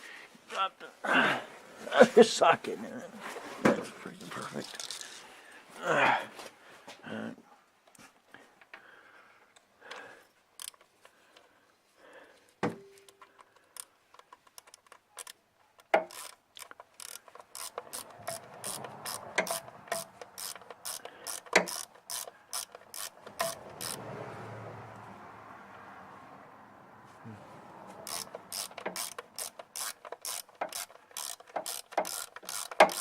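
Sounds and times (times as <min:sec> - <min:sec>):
socket ratchet clicking: 0:10.6 - 0:10.9, 0:13.5 - 0:24.0, 0:28.0 - 0:33.0.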